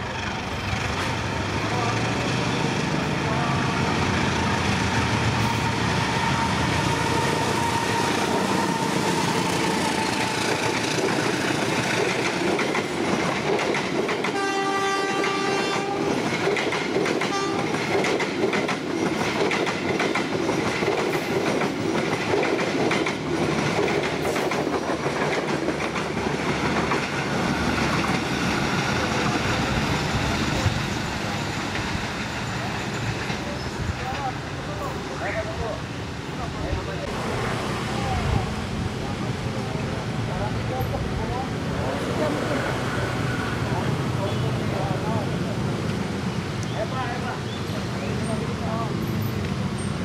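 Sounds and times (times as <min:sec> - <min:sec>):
passenger train passing: 0:00.0 - 0:50.0
train horn: 0:14.3 - 0:16.2, 0:17.3 - 0:17.7.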